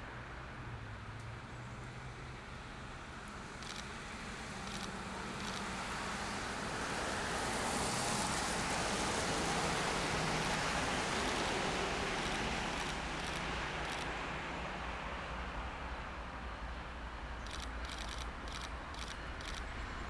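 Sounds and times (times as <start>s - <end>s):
train wheels rolling on rails: 4.6s - 7.4s, 8.6s - 14.1s, 17.4s - 20.0s.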